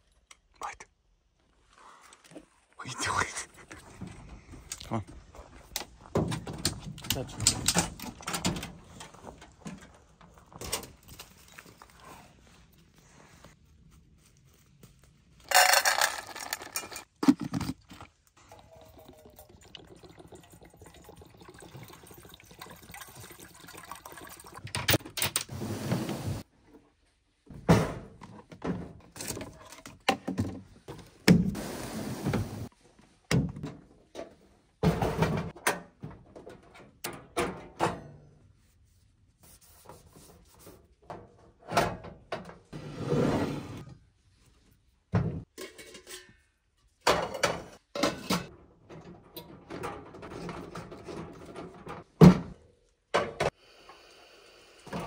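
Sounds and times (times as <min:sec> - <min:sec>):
metal camp gear clattering: 0:06.1 - 0:12.3, 0:15.4 - 0:18.1, 0:45.6 - 0:52.0.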